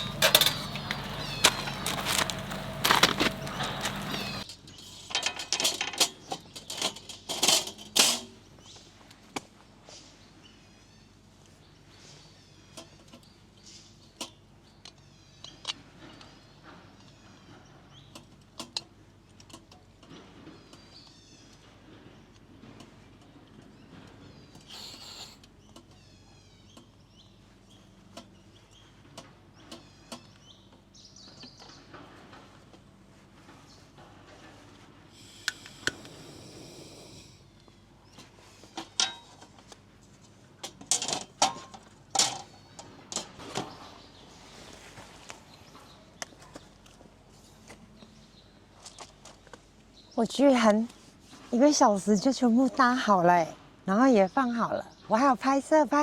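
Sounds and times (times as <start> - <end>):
faint bird chirps: 0.0 - 4.9, 24.2 - 29.0
birds chirping: 0.0 - 5.0, 23.2 - 32.0, 35.2 - 38.9, 41.9 - 50.8
camping gear rustling and clicking: 0.0 - 8.3.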